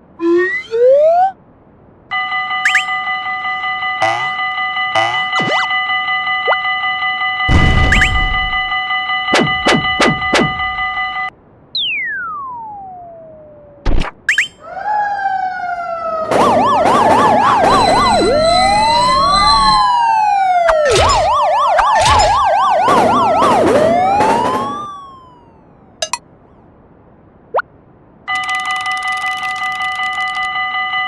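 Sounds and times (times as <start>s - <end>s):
police sirens wailing and yelping: 0.3s - 1.4s, 4.0s - 5.7s, 14.7s - 26.2s
falling tone: 2.7s - 3.0s, 4.0s - 4.4s, 5.0s - 5.7s, 7.5s - 11.2s, 14.3s - 14.7s, 16.3s - 25.4s
sharp hit: 7.5s - 11.1s.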